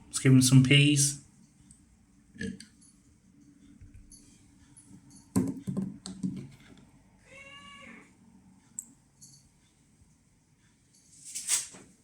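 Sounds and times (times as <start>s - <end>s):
cat meowing: 7.2s - 8.1s.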